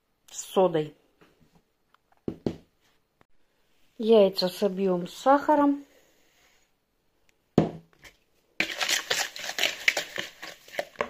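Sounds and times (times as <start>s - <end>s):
eggs beaten by hand in bowl: 8.6s - 11.0s.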